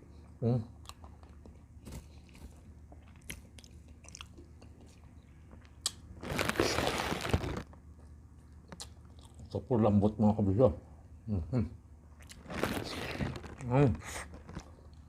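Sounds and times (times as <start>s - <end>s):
chewing with wet clicks: 0.1s - 6.0s, 7.7s - 9.6s.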